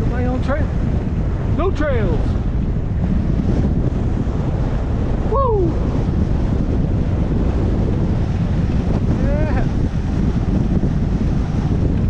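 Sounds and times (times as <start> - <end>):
low rumble: 0.0 - 12.0
wind buffeting microphone: 0.0 - 12.0.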